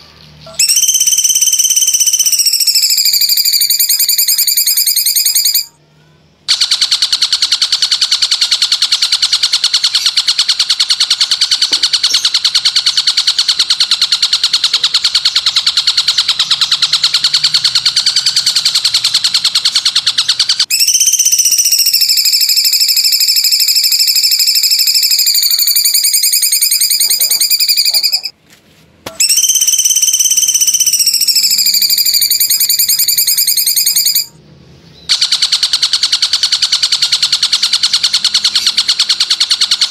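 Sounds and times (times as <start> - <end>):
high-pitched buzzing trill: 0.4 - 5.8, 11.1 - 28.3, 29.1 - 34.4.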